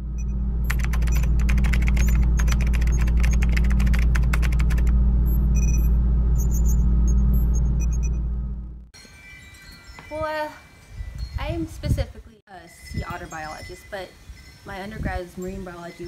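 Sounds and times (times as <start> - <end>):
loud low drone: 0.0 - 8.9
keyboard clicks: 0.7 - 4.9.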